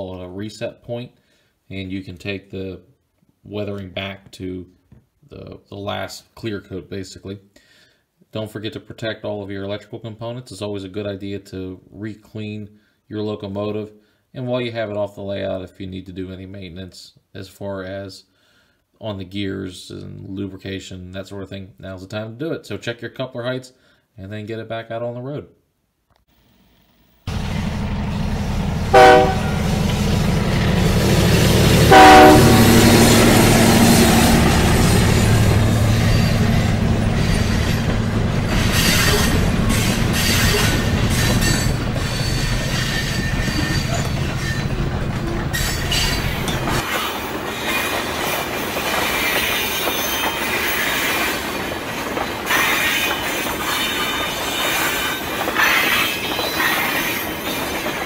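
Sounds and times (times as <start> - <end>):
freight train rumbling: 27.3 - 58.0
wheels clattering on rails: 27.3 - 58.0
locomotive horn blasts: 28.9 - 29.7, 31.9 - 33.1.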